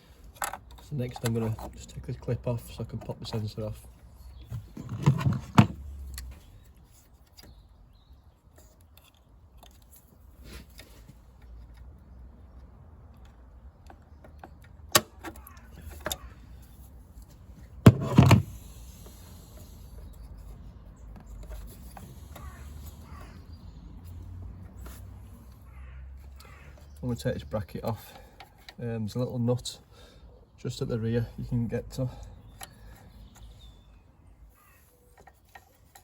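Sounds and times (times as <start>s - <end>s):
clicks and knocks of car parts: 0.2s - 2.0s, 4.4s - 7.6s, 10.7s - 18.8s.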